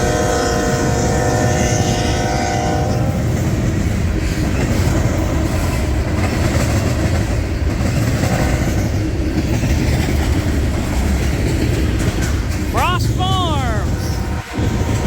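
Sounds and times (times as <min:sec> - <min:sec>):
train horn chord: 0:00.0 - 0:03.1.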